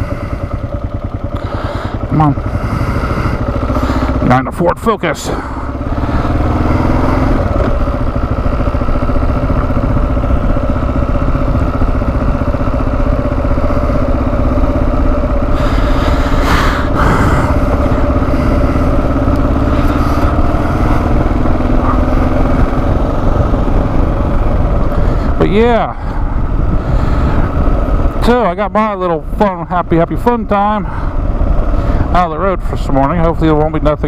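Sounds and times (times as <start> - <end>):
motorcycle engine running: 0.0 - 34.0
rush of noise: 5.3 - 29.6.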